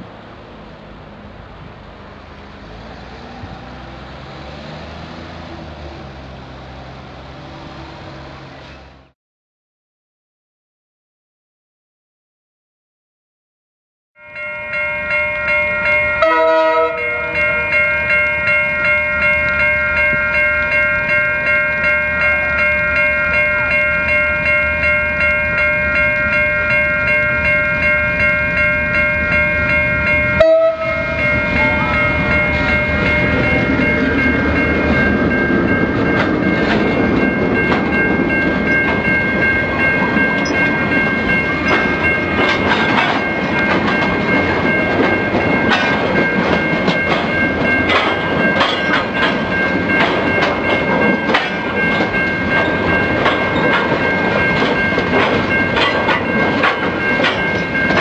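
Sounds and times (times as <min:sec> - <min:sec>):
diesel locomotive rumbling past: 0:00.0 - 0:09.1, 0:14.2 - 0:58.0
level crossing bells ringing: 0:14.2 - 0:58.0.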